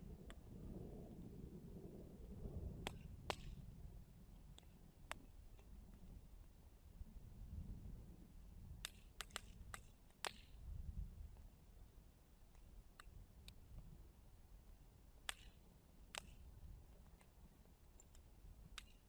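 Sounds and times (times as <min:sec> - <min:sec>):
wood fire crackling and popping: 0:02.8 - 0:03.6, 0:15.3 - 0:16.5, 0:18.7 - 0:19.0.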